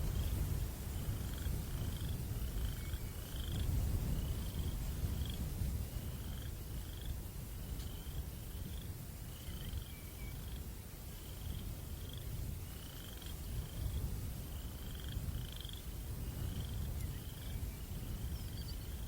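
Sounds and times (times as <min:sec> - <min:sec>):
low rumbling wind: 0:00.0 - 0:19.0.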